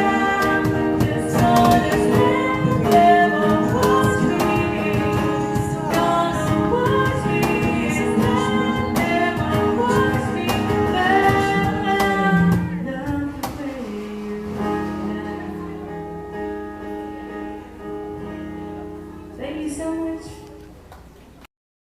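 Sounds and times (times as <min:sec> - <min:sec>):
person singing: 0:00.0 - 0:16.7
strummed acoustic guitar: 0:00.0 - 0:19.8.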